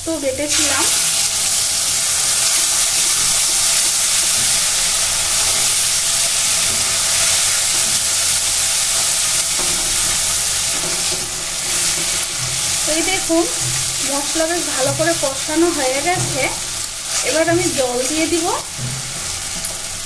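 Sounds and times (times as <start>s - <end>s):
paste sizzling in hot oil: 0.1s - 20.0s
metal spatula stirring in pan: 4.3s - 20.0s.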